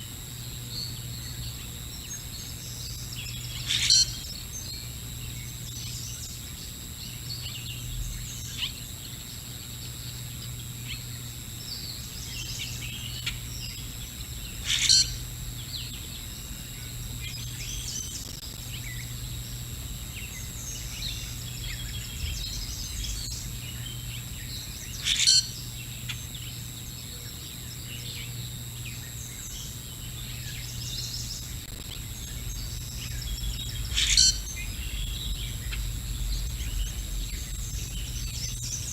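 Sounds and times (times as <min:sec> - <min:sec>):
steady low hum: 0:00.0 - 0:38.9
birds chirping: 0:00.7 - 0:38.9
loud bird call: 0:33.7 - 0:35.7.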